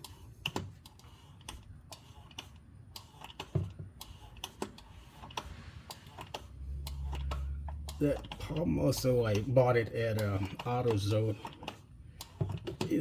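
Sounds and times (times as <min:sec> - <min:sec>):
plastic clicks and taps: 0:09.3 - 0:13.0.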